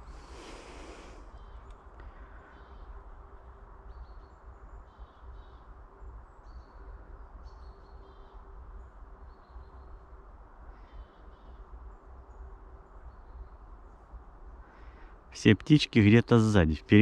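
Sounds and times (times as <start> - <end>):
birds chirping: 10.8 - 17.0.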